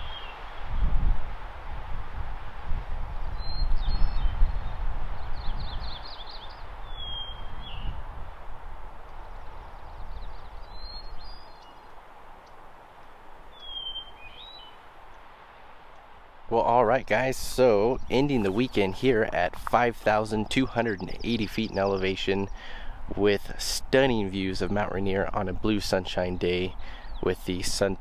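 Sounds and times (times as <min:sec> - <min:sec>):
songbird whistled call: 0:00.0 - 0:00.4, 0:03.4 - 0:04.7, 0:05.3 - 0:08.0, 0:09.8 - 0:11.8, 0:13.5 - 0:14.8
wind rumble on microphone: 0:00.0 - 0:12.0, 0:17.0 - 0:28.0.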